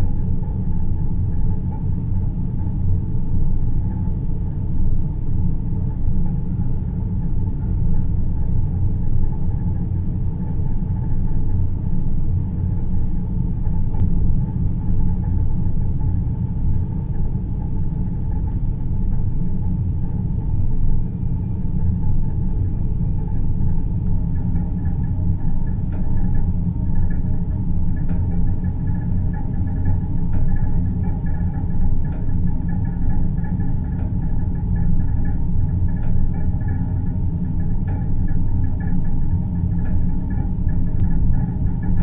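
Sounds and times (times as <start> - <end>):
deep low rumble: 0.0 - 42.0
faint hum: 0.0 - 42.0.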